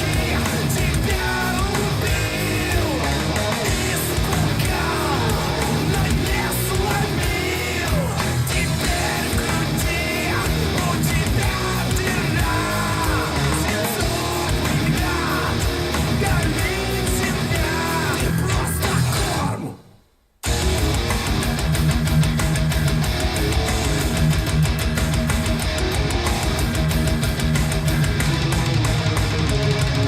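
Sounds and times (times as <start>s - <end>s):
heavy rock song over loudspeakers: 0.0s - 30.0s.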